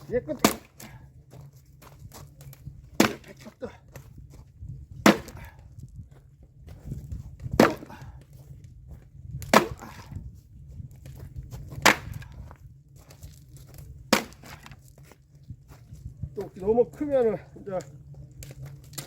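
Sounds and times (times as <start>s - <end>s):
axe splitting firewood: 0.0s - 1.1s, 1.8s - 3.8s, 5.0s - 5.6s, 7.4s - 8.3s, 9.4s - 10.2s, 11.6s - 12.5s, 13.7s - 14.8s, 17.7s - 19.0s.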